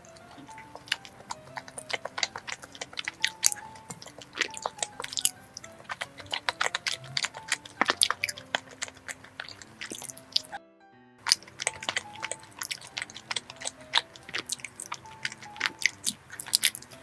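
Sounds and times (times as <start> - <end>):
close chewing of rice cake: 0.0 - 10.6, 11.3 - 17.0
soft background music: 0.0 - 17.0
wet mouth clicks and smacks: 0.2 - 10.6, 11.3 - 16.8.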